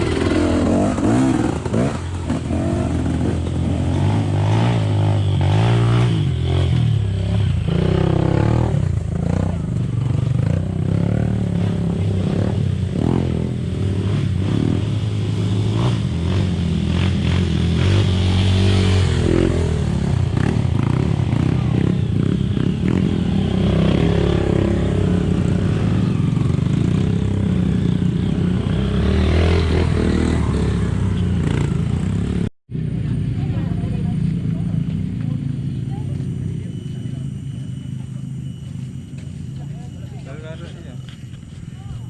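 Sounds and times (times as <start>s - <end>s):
atv engines revving: 0.0s - 42.0s.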